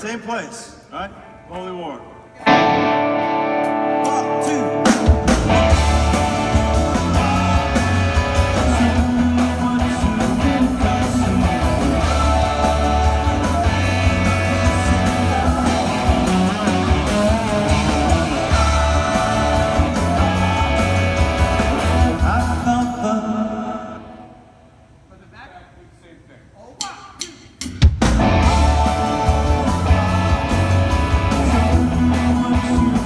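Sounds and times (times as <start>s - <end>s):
drums: 2.3s - 33.0s
bass guitar: 2.4s - 23.0s, 27.9s - 33.0s
electric guitar: 2.4s - 23.2s, 28.0s - 33.0s
person singing: 5.7s - 24.3s, 28.4s - 33.0s.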